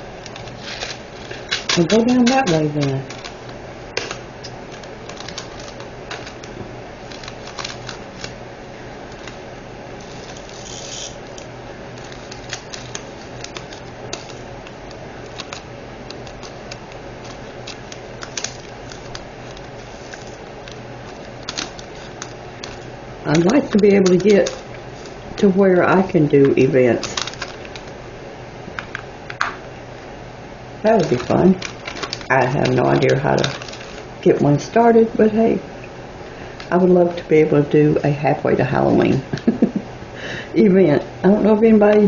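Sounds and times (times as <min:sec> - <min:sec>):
faint steady hum: 0:00.0 - 0:42.0
small plastic items clicking: 0:04.0 - 0:06.5, 0:10.1 - 0:24.7, 0:27.0 - 0:27.9, 0:31.0 - 0:34.0.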